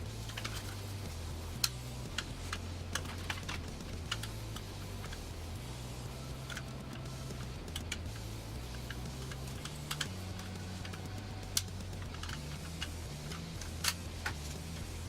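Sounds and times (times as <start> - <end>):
clicks of small hard parts: 1.6 - 5.2, 6.4 - 14.9.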